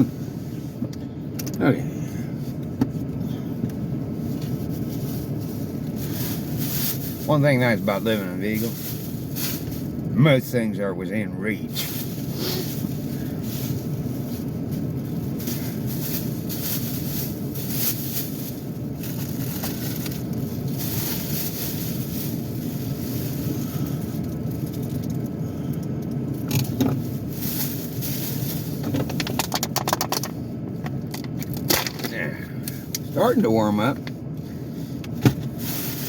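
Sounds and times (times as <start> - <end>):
car engine idling: 0.0 - 36.0
objects clicking and rattling: 28.8 - 32.1.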